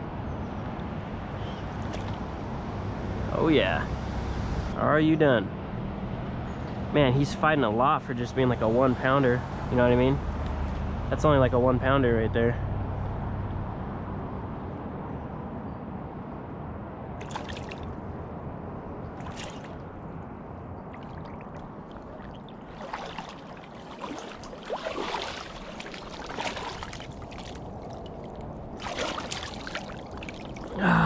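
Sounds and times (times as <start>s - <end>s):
low background rumble: 0.0s - 31.0s
fish splashing in water: 1.8s - 2.3s, 17.2s - 18.0s, 19.2s - 19.9s, 20.9s - 30.8s.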